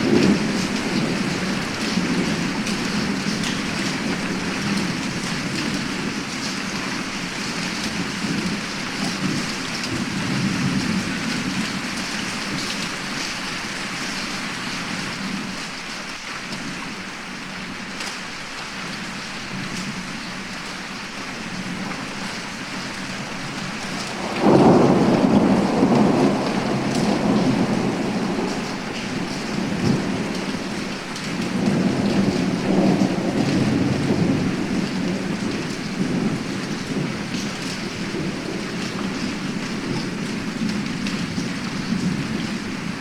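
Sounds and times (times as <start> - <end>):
loud thunderclap: 0.0 - 6.4, 23.1 - 43.0
thunder rumbling: 0.0 - 11.9, 21.5 - 43.0
heavy rain: 0.0 - 43.0.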